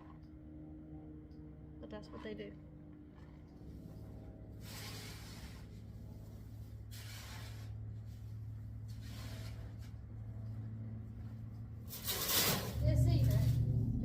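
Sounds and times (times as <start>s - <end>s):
steady low hum: 0.0s - 14.0s
scraping manure off floor: 6.5s - 10.0s, 11.9s - 13.6s.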